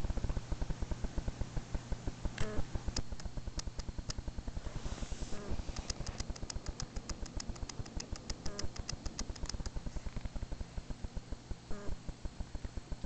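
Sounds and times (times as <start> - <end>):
faint steady hum: 0.0 - 13.0
low mechanical pulsing: 0.0 - 13.0
sharp high ticks: 2.4 - 4.2, 5.4 - 9.9.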